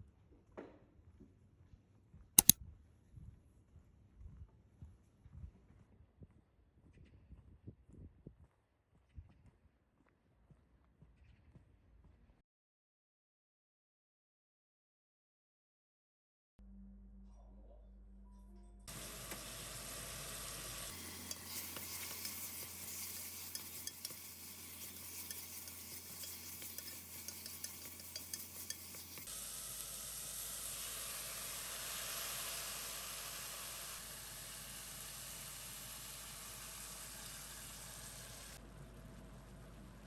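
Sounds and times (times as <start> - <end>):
utensil scraping a pan: 18.9 - 29.3
food sizzling in a frying pan: 18.9 - 38.6.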